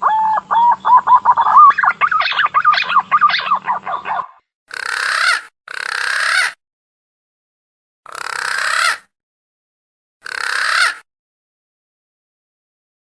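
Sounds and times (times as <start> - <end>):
breathy rising whistled bird call: 0.0 - 4.4.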